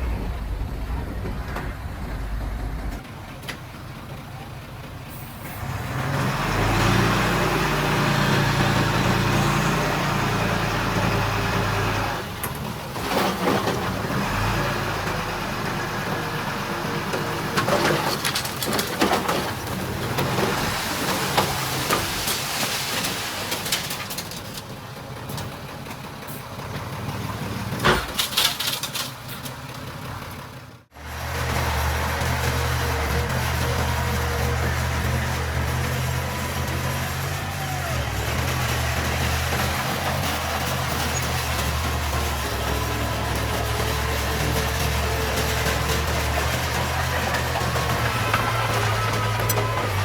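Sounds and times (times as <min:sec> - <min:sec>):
heavy machinery diesel engine running: 0:00.0 - 0:18.7, 0:29.6 - 0:50.0.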